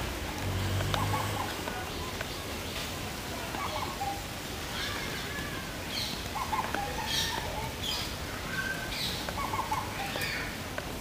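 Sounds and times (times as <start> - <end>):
steady background noise: 0.0 - 11.0
birds chirping: 3.4 - 4.4, 5.8 - 10.6.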